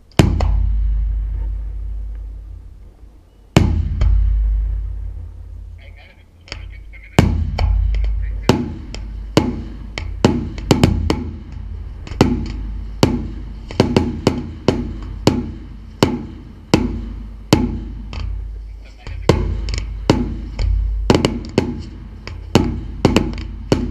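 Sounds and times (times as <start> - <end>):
steady low rumble: 0.0 - 23.9
fireworks bursting with sharp bangs: 6.5 - 23.9.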